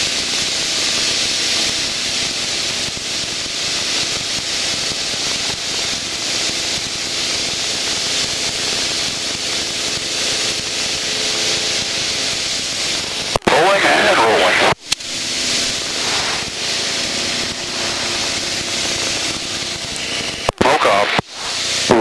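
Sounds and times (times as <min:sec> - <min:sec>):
propeller airplane engine drone: 0:00.0 - 0:22.0
airflow hiss: 0:10.8 - 0:22.0.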